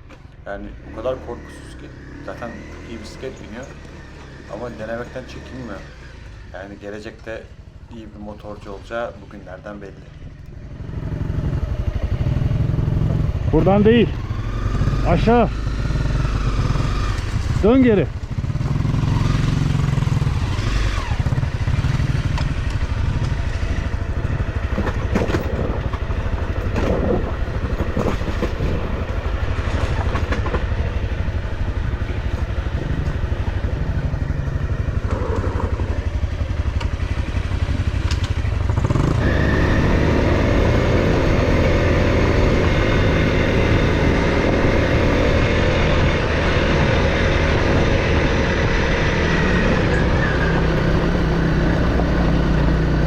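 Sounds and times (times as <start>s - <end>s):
off-road motorcycle engine: 0.0s - 53.0s.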